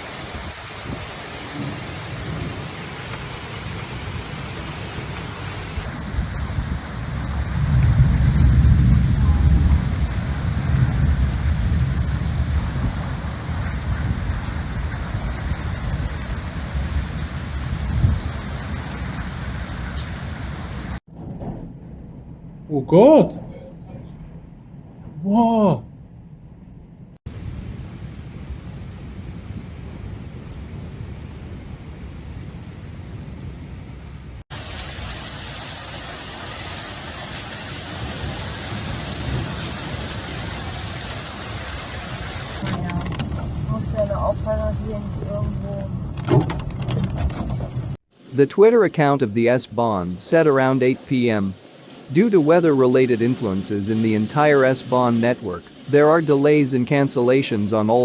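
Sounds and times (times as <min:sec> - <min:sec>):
heavy rain pouring: 0:00.0 - 0:21.1, 0:34.3 - 0:46.0, 0:47.9 - 0:58.0
deep low thunder rumble: 0:05.8 - 0:25.2, 0:42.6 - 0:48.0.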